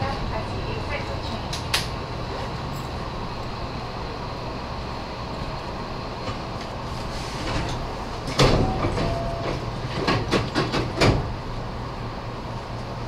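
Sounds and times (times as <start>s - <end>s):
train rumbling on board: 0.0s - 13.0s
wheels clacking over rail joints: 7.5s - 11.4s.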